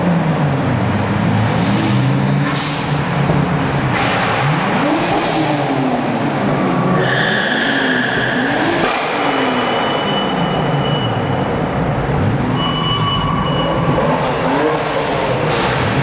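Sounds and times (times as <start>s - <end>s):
sports car engines revving: 0.0s - 16.0s.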